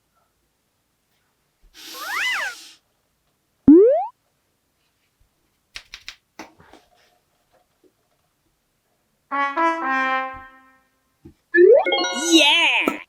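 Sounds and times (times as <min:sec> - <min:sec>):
trumpet-like brass sound effect: 0:09.3 - 0:10.6.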